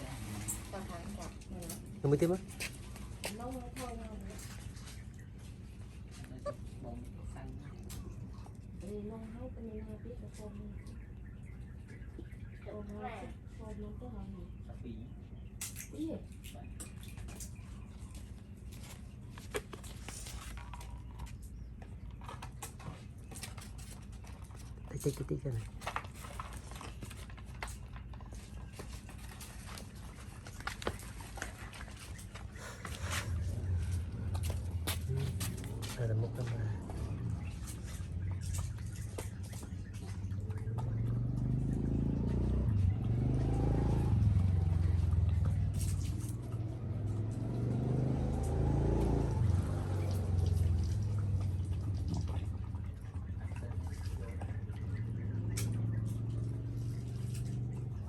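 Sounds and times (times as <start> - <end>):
low engine-like rumble: 0.0 - 58.0
dogs chewing and lapping: 15.2 - 58.0
steady low rumble: 32.2 - 47.6.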